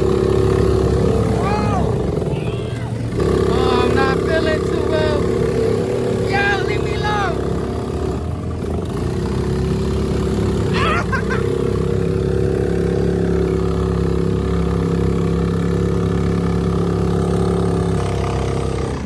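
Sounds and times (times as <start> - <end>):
small engine running: 0.0 - 19.0
person shouting: 1.2 - 5.3, 6.2 - 7.6, 10.7 - 11.5.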